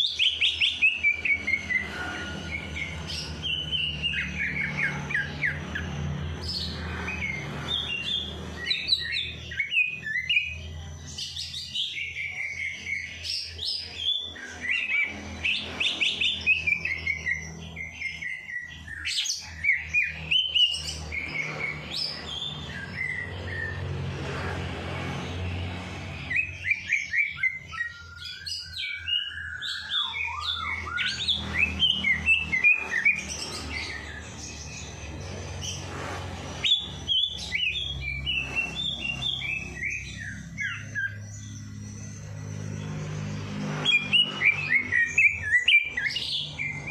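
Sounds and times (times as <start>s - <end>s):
songbirds singing: 0.0s - 46.9s
steady low hum: 30.7s - 46.9s.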